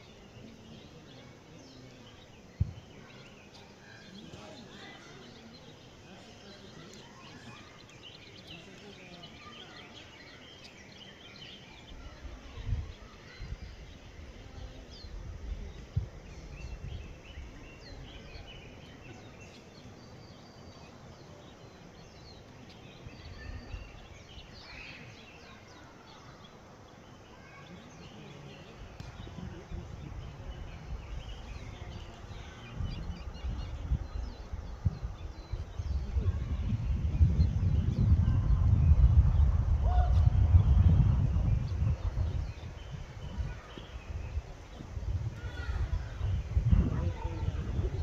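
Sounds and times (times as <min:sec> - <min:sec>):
low rumbles: 0:29.0 - 0:48.0.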